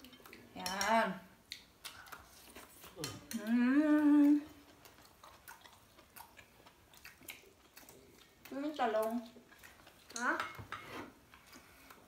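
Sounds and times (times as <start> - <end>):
person humming: 3.0 - 4.5.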